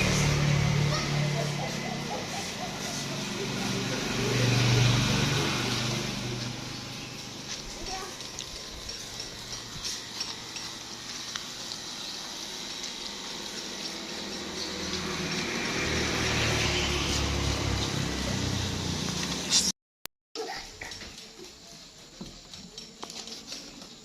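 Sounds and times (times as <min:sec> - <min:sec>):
water running and splashing: 0:00.0 - 0:18.9.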